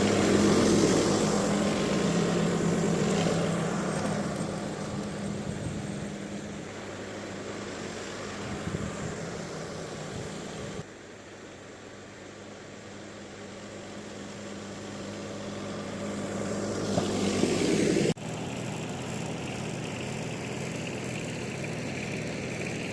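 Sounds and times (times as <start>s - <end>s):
tractor engine running: 0.0s - 10.9s, 12.8s - 22.9s.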